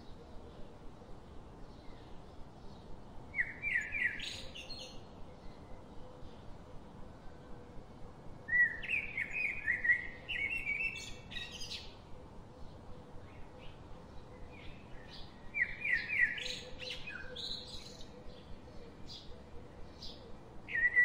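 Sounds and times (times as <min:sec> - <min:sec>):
faint background hiss: 0:00.0 - 0:21.0.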